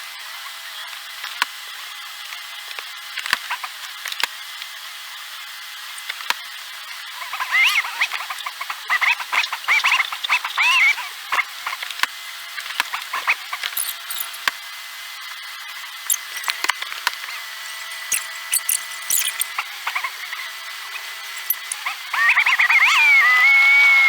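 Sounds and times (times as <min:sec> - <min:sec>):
short high-pitched squeaks: 0:13.8 - 0:14.4, 0:16.1 - 0:16.6, 0:17.9 - 0:19.5, 0:21.4 - 0:21.9
sharp clicks and knocks: 0:13.8 - 0:14.5, 0:16.1 - 0:16.6, 0:17.9 - 0:19.5, 0:21.4 - 0:21.9.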